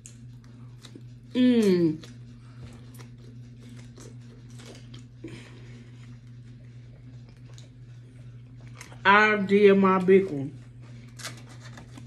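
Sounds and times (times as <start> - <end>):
chewing and mouth sounds: 0.0 - 9.0
low hum: 0.0 - 12.0.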